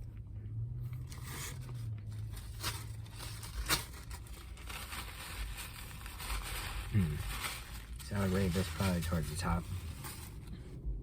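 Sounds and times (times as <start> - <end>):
low hum: 0.0 - 11.0
sharp crackles: 1.2 - 10.3.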